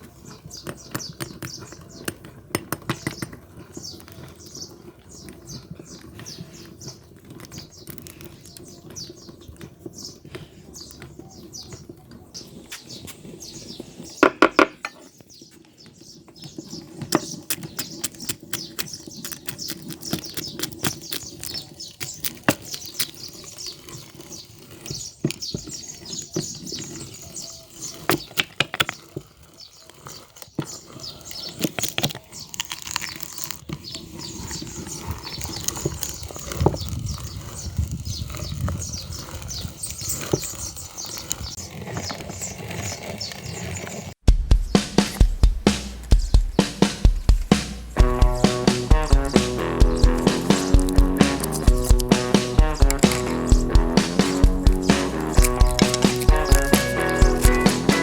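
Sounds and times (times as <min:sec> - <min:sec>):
electric meat grinder crunching: 0:17.4 - 0:23.2, 0:48.0 - 0:58.0.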